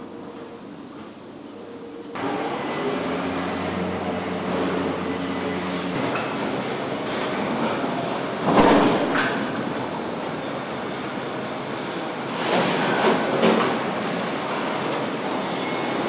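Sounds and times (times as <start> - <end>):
assembly-line machinery humming: 2.2 - 12.2.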